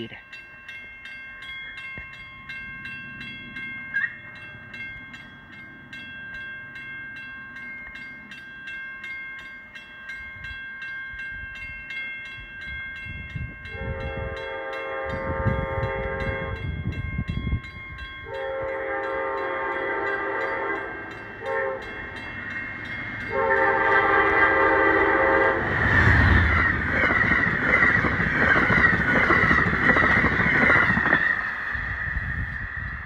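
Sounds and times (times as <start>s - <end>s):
train wheels rushing on rails: 13.2s - 33.0s
locomotive air horn blasts: 13.7s - 16.7s, 18.2s - 22.0s, 23.3s - 25.8s.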